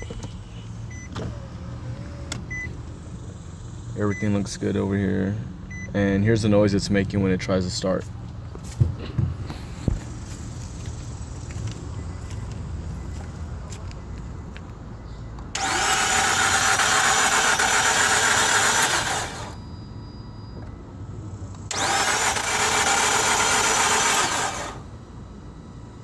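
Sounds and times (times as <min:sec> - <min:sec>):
car starter motor whirring: 0:00.0 - 0:04.6, 0:15.5 - 0:19.7, 0:21.4 - 0:25.2.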